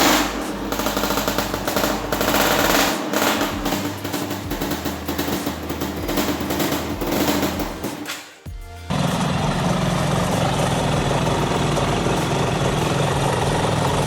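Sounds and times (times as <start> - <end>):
motorcycle engine rattling: 0.0 - 8.0, 8.9 - 14.0.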